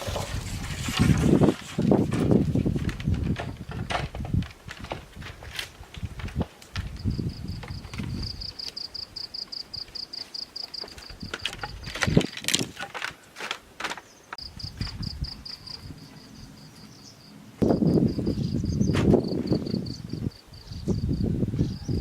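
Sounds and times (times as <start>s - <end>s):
insect chirping: 6.9s - 12.1s, 14.4s - 21.8s.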